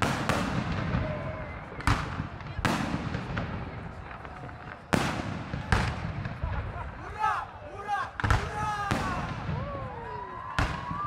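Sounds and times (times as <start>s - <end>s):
fireworks crackle: 0.0s - 7.2s
fireworks bangs: 0.0s - 7.4s, 8.0s - 11.0s.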